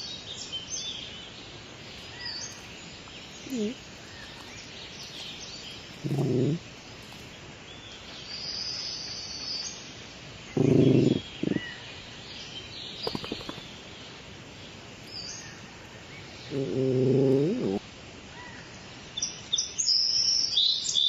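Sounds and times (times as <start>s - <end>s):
birds chirping: 0.0s - 17.8s
sharp clicks: 13.0s - 13.7s.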